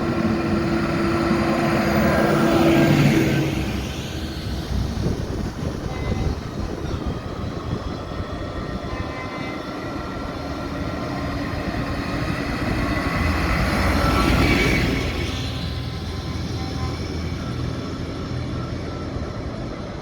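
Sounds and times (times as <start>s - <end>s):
tractor engines rumbling: 0.0s - 20.0s.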